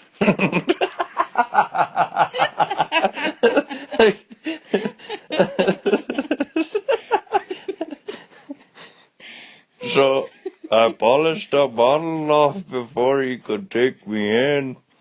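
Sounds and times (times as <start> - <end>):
person chuckling: 0.2 - 8.6, 9.8 - 11.2.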